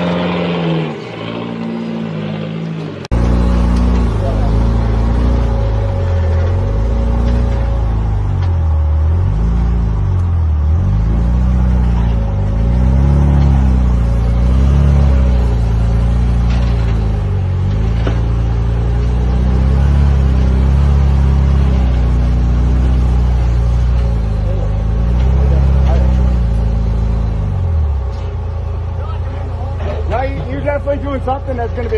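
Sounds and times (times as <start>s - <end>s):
vehicle engine revving: 0.0s - 31.9s.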